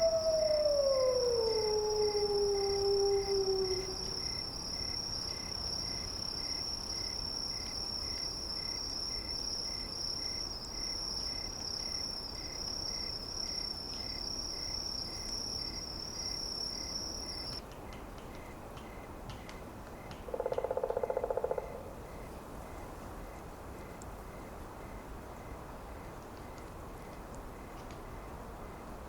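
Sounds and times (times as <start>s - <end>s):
long howl falling in pitch: 0.0s - 4.4s
high-pitched insect trill: 0.0s - 17.6s, 20.3s - 22.2s.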